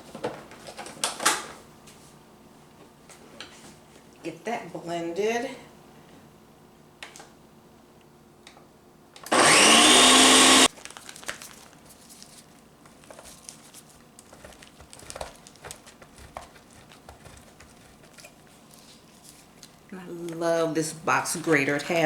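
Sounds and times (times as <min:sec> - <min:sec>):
blender motor whine: 0:09.2 - 0:10.7.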